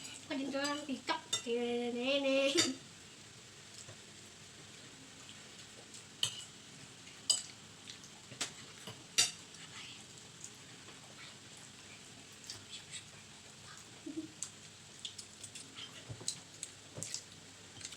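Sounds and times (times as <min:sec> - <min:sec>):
cutlery clinking against a plate: 0:06.2 - 0:06.6, 0:07.3 - 0:07.6, 0:08.4 - 0:09.4.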